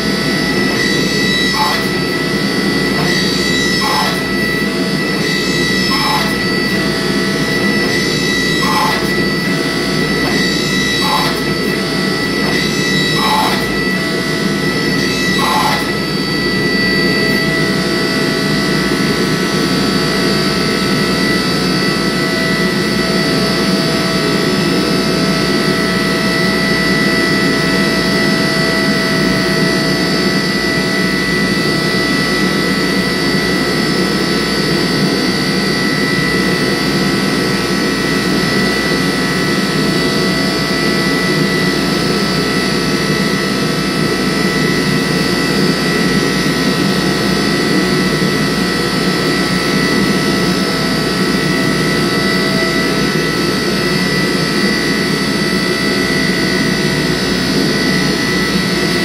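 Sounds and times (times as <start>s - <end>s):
steady high tones: 0.1s - 17.7s.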